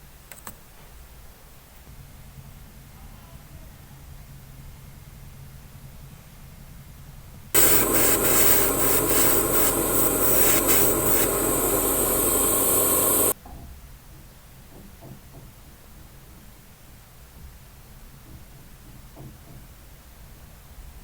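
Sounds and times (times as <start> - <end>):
spray paint hissing: 7.6 - 13.4.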